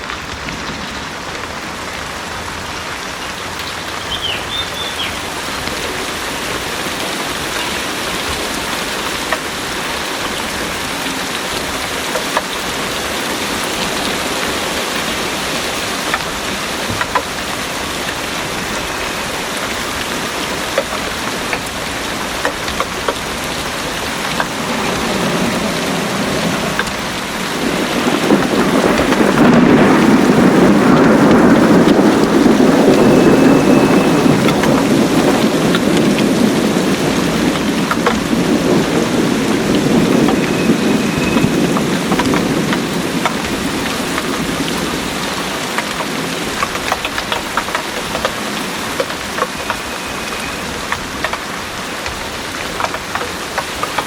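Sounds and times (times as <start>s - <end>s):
heavy rain: 0.0s - 54.0s
low rumble of thunder: 9.4s - 47.4s.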